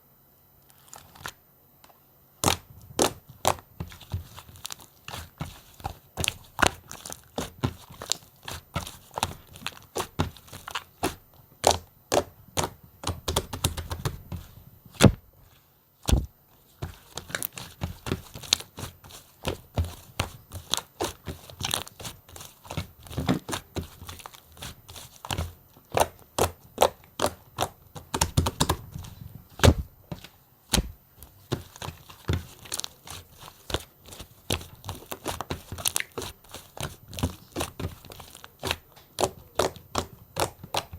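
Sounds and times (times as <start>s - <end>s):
slime crackling and popping: 2.4s - 14.3s, 30.7s - 40.9s.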